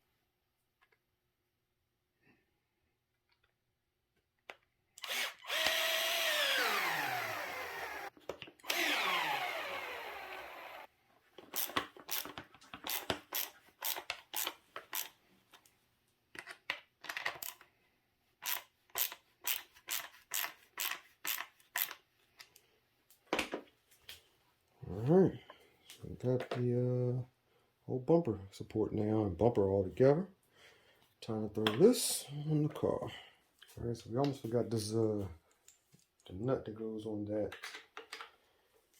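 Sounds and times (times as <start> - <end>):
power driver driving screws: 5.0 - 10.9, 11.5 - 15.2, 18.4 - 22.0.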